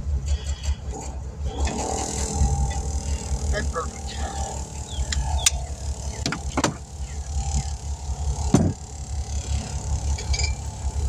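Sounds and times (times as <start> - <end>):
motor chugging: 0.0 - 11.0
sharp clanks and knocks: 4.4 - 10.8.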